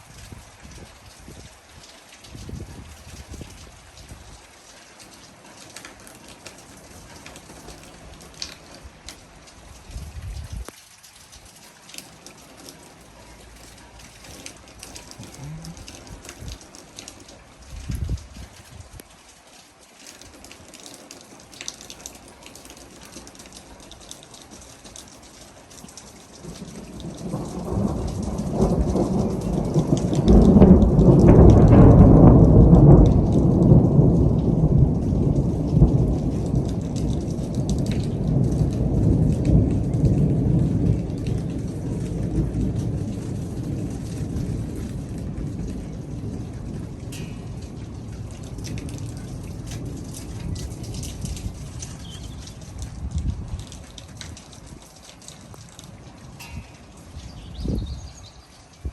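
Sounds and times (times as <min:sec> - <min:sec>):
rain falling: 0:00.0 - 0:58.9
rolling thunder: 0:02.3 - 0:04.4, 0:06.8 - 0:10.7, 0:14.2 - 0:19.0, 0:26.4 - 0:54.8.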